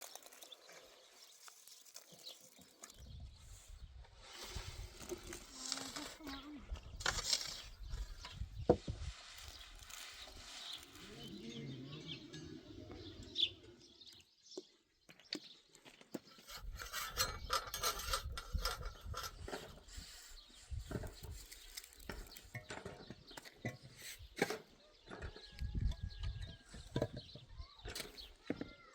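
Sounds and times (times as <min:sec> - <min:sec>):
livestock sounds: 0:10.0 - 0:14.2.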